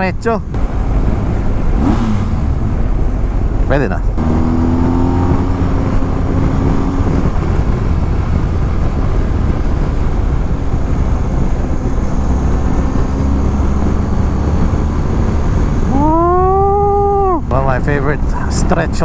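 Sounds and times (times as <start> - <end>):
heavy wind rush on microphone: 0.0 - 19.0
motorcycle engine running: 0.4 - 18.9.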